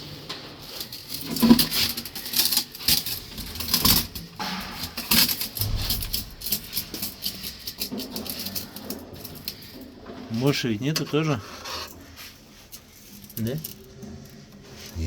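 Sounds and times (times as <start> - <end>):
metal parts and tools clinking: 0.8 - 9.8.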